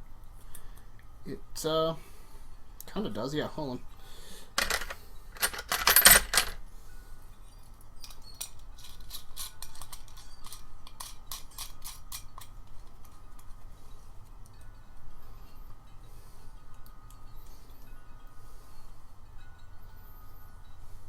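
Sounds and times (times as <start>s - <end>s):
metal parts and tools clattering: 4.6s - 6.6s, 8.0s - 13.5s.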